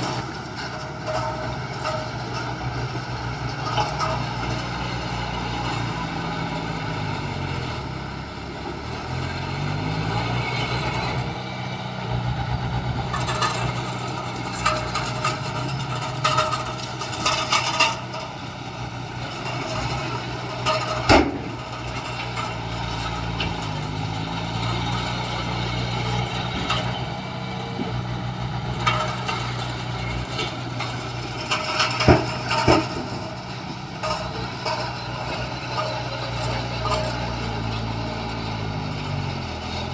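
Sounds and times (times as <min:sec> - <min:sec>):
heavy diesel engine running: 0:00.0 - 0:39.9
sharp metallic clanks: 0:13.0 - 0:39.9.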